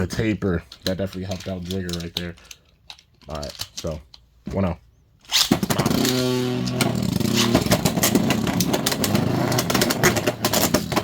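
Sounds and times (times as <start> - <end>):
tops clicking and rattling: 0.0 - 4.3, 5.3 - 11.0
spinning tops launching whir: 5.3 - 11.0.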